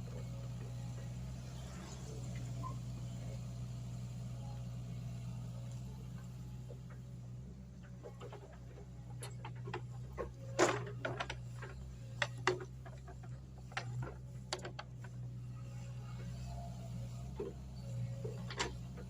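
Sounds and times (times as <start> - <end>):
excavator engine humming: 0.0 - 19.0
digging clicks and knocks: 7.8 - 15.2, 18.2 - 19.0.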